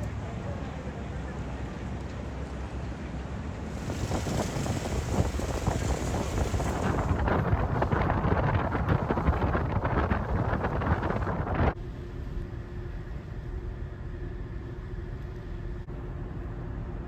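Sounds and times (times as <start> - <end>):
steady low rumble: 0.0 - 17.0
strong wind buffeting microphone: 3.3 - 11.8.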